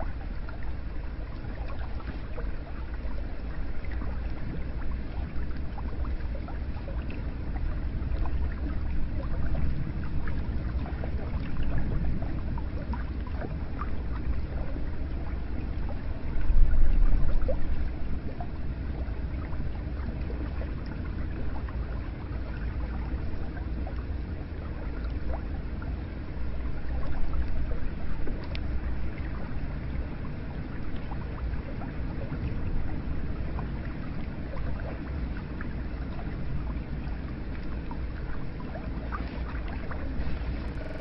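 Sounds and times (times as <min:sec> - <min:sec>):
water running with splashes: 0:39.0 - 0:41.0.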